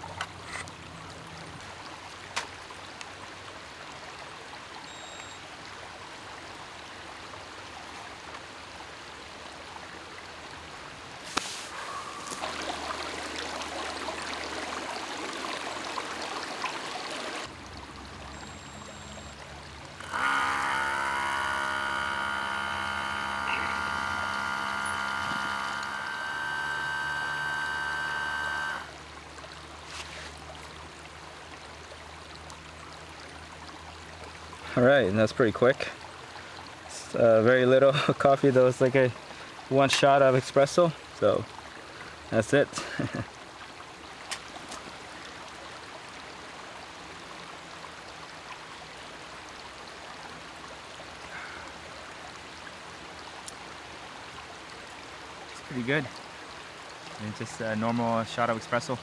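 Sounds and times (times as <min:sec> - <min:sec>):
running water rushing: 0:10.3 - 0:31.6, 0:49.3 - 0:59.0
faint hiss: 0:11.2 - 0:13.0
espresso maker whine and hum: 0:11.7 - 0:13.1, 0:18.3 - 0:19.4, 0:20.0 - 0:29.0.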